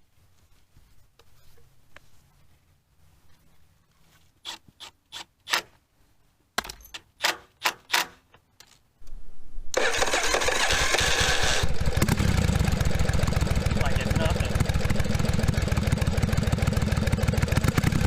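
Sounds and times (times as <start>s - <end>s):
sharp clicks and knocks of parts: 6.6s - 8.8s
motorcycle engine starting and running: 9.8s - 18.0s.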